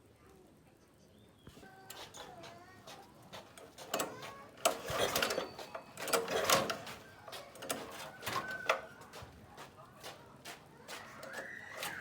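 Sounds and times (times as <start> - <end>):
tools and parts clattering: 3.6 - 8.9.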